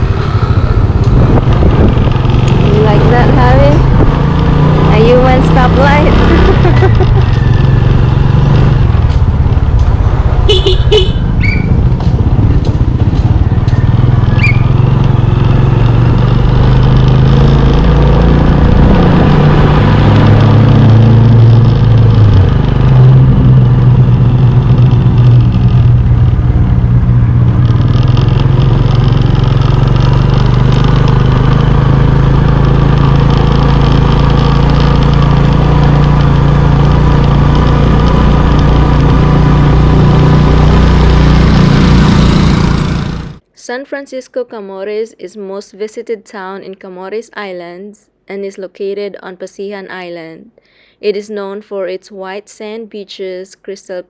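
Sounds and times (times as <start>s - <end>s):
motorbike engine riding: 0.0s - 43.5s.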